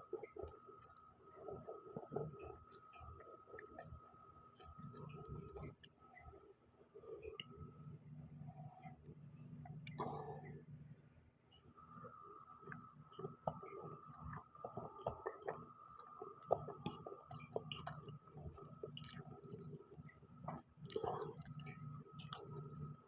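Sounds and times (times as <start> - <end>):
person chewing noodles: 0.1 - 4.0, 4.6 - 6.0, 13.5 - 19.8, 20.8 - 22.9.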